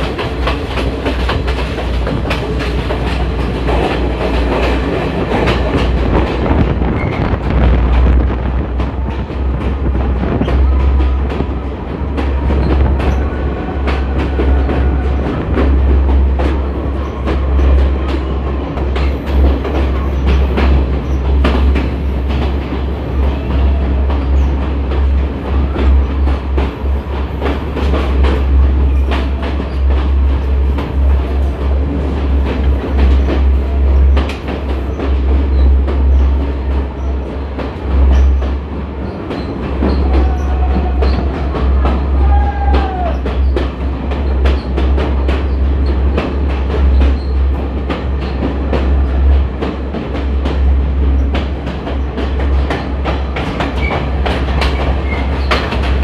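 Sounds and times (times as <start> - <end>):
train rumbling on rails: 0.0 - 56.0
wheels clicking over rail joints: 0.0 - 56.0
wheel squeals: 38.0 - 44.8, 46.8 - 47.5, 53.6 - 56.0.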